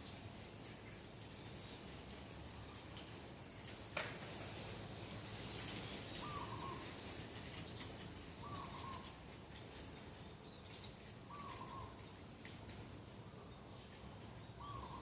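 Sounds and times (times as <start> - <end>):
dove cooing: 6.2 - 6.9, 8.4 - 9.2, 11.3 - 12.0, 14.6 - 15.0.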